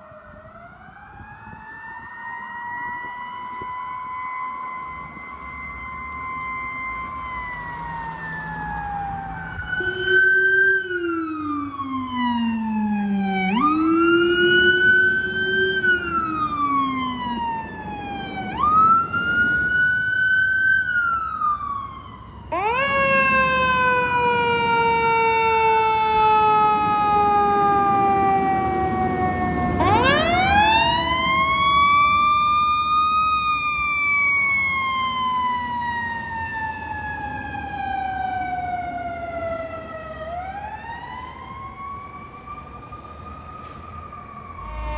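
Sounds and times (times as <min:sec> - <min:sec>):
fire engine sirens wailing: 0:00.0 - 0:44.9.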